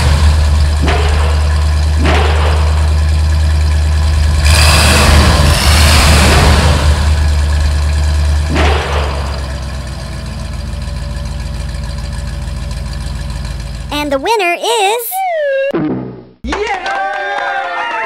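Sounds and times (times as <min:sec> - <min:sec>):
racing car engine revving: 0:04.2 - 0:07.5.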